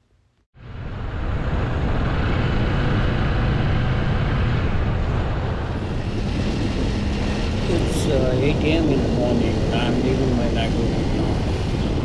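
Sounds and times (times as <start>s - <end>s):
wind and road noise: 0.6s - 12.0s.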